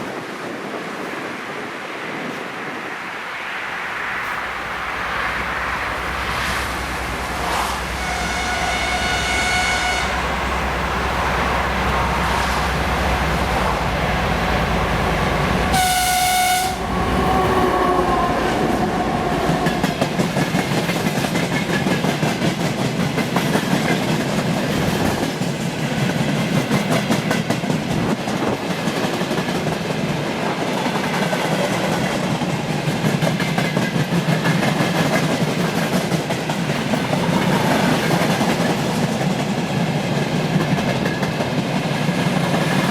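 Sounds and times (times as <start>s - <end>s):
locomotive horn blasts: 7.9s - 10.5s, 15.7s - 18.4s.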